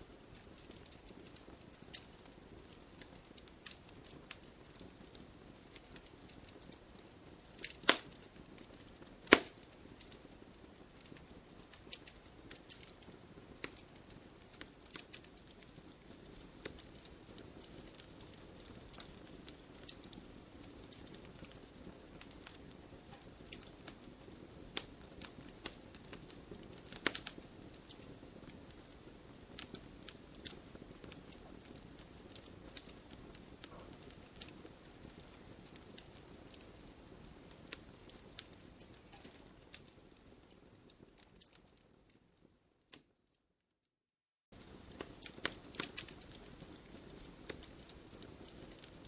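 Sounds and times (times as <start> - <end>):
campfire crackling and popping: 0.0 - 43.2, 44.5 - 49.0.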